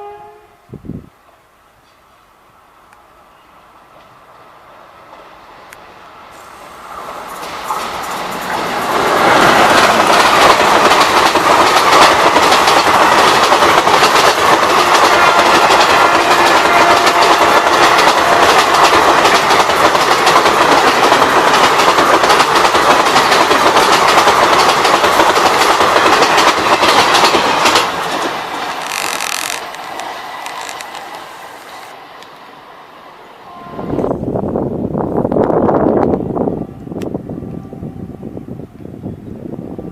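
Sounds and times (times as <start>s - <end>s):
train wheels clattering over joints: 7.3s - 31.2s.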